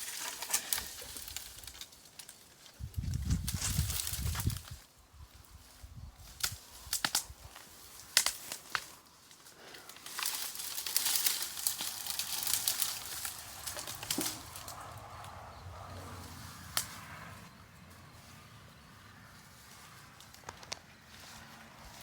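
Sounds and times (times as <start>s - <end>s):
dry branches crackling and rustling: 0.0s - 22.0s
sharp snap of branch: 6.3s - 9.0s, 16.7s - 17.0s.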